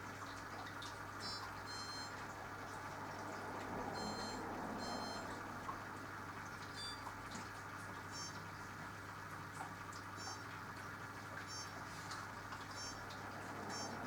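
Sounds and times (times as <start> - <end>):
washing machine humming: 0.0 - 14.0
water sloshing in tub: 0.0 - 14.0.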